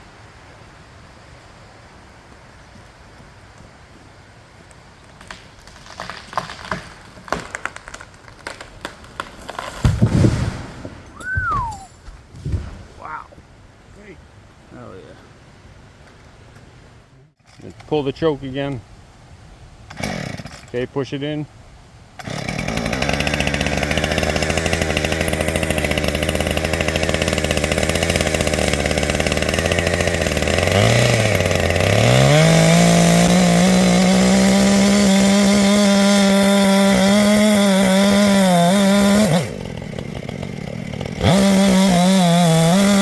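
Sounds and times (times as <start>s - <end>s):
chainsaw idling and revving: 9.2s - 11.8s, 19.9s - 20.8s, 22.2s - 43.0s.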